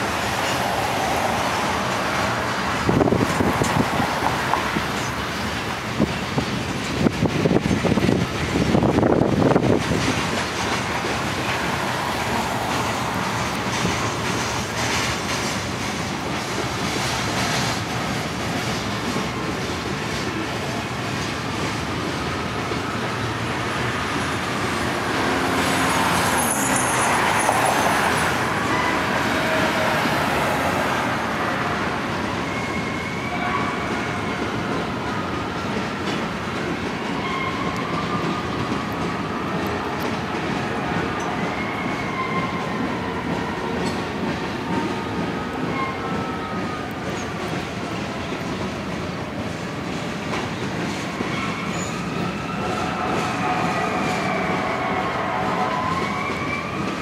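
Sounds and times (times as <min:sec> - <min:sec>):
train wheels rumbling on rail: 0:00.0 - 0:57.0
high wheel squeals: 0:24.2 - 0:34.6, 0:37.0 - 0:38.6, 0:40.9 - 0:44.0, 0:45.6 - 0:47.4, 0:51.0 - 0:57.0.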